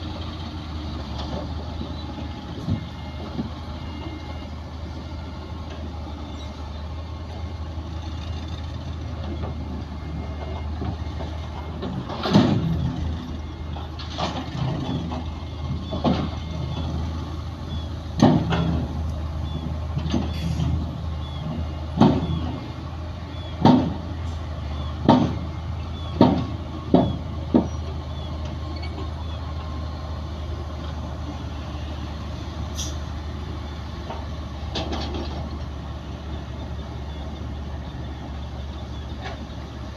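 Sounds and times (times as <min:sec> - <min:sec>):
diesel engine of heavy machinery: 0:00.0 - 0:39.9.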